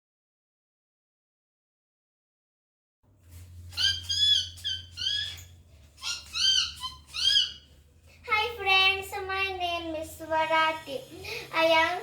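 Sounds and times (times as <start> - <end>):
bird whistled calls: 3.7 - 7.7
child's sing-song voice: 8.2 - 12.0.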